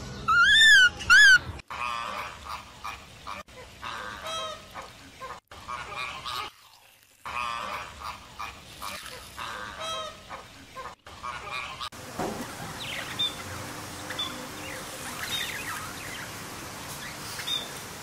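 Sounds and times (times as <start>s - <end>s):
flamingos honking: 0.5s - 6.6s, 7.2s - 18.0s
budgerigars chirping: 12.8s - 16.3s.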